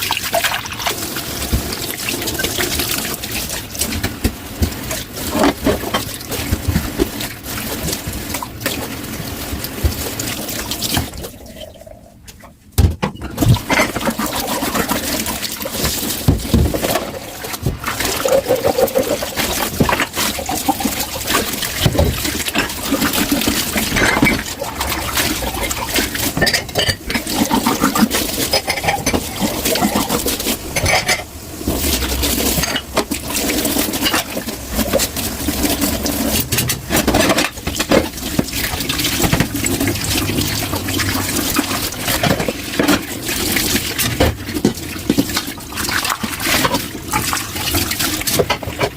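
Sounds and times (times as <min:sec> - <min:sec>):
tap water running into sink: 0:00.0 - 0:11.9, 0:13.3 - 0:48.9
dishes and cutlery clinking: 0:28.4 - 0:31.3.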